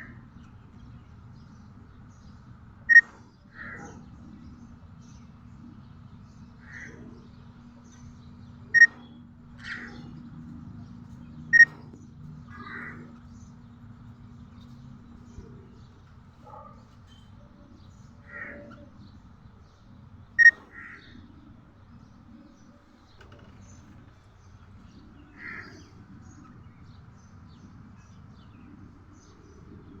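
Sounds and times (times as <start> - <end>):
budgerigar chirping: 8.8 - 9.1, 11.5 - 11.8, 20.4 - 21.0.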